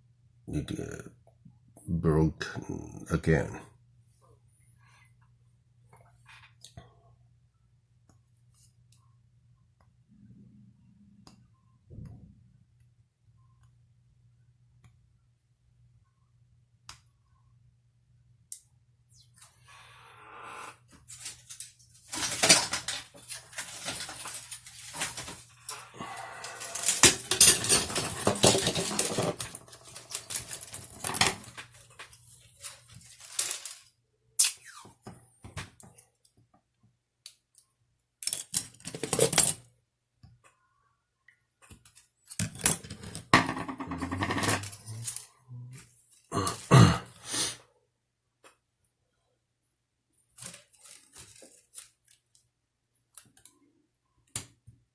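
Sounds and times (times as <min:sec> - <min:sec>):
rustling and scraping: 0:21.0 - 0:33.9, 0:50.4 - 0:52.0.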